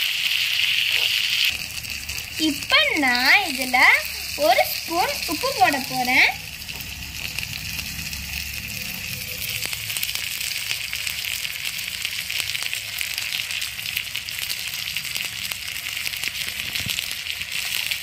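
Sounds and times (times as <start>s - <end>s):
fire crackles: 0.0s - 18.0s
food sizzling in hot oil: 0.0s - 18.0s.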